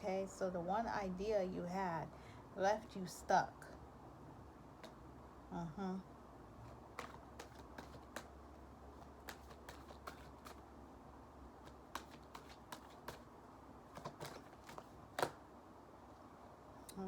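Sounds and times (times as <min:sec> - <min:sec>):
cards being shuffled: 0:06.7 - 0:10.7, 0:11.6 - 0:13.3, 0:13.9 - 0:15.4.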